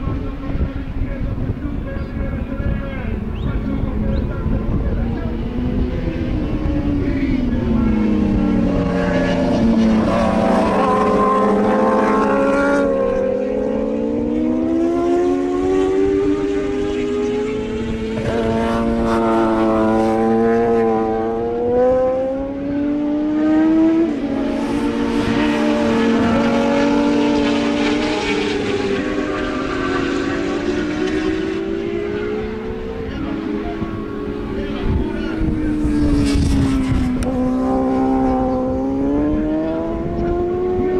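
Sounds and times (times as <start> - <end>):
racing motorcycle engines revving: 0.0 - 40.9.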